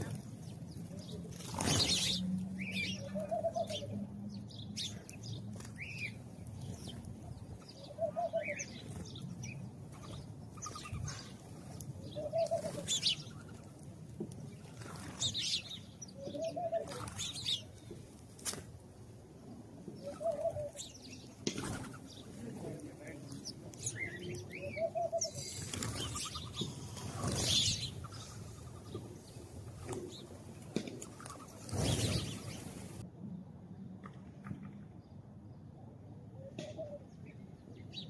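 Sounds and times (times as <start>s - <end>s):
sparrows chirping: 0.0s - 18.2s, 18.8s - 33.0s
dove cooing: 1.9s - 4.1s, 7.8s - 8.8s, 12.0s - 13.6s, 16.2s - 17.3s, 20.0s - 20.9s, 23.9s - 26.7s, 36.4s - 37.1s.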